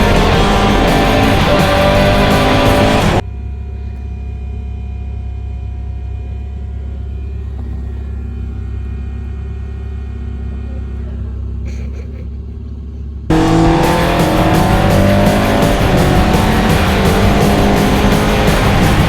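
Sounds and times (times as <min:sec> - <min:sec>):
race car engine revving: 0:00.0 - 0:03.2, 0:12.6 - 0:19.0
steady low hum: 0:00.0 - 0:19.0.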